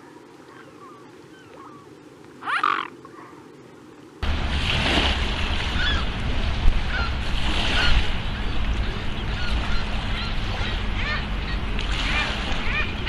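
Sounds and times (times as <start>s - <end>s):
wind rumble on microphone: 4.2s - 13.0s
geese honking: 5.2s - 13.0s.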